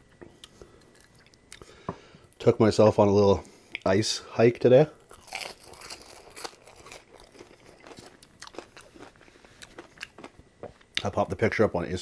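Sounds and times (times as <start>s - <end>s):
chewing crunchy fries: 5.0s - 11.2s.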